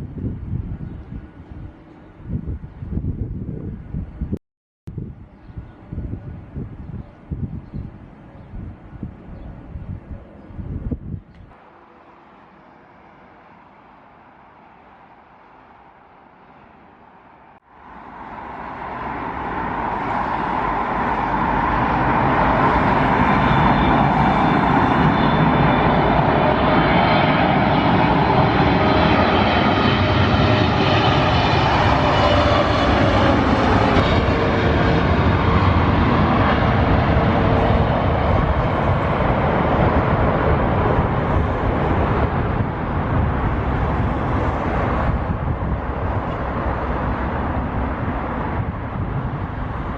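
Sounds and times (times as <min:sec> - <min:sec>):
jet engines roaring and whining: 0:11.3 - 0:49.9.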